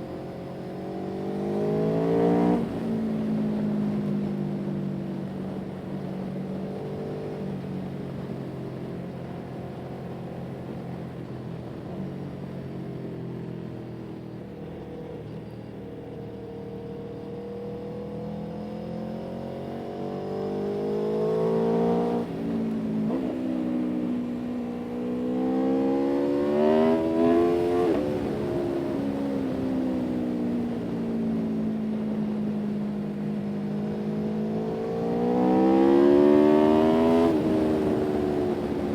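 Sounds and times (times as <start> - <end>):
vehicle engine revving: 19.3 - 23.7, 24.8 - 29.0, 33.8 - 38.9.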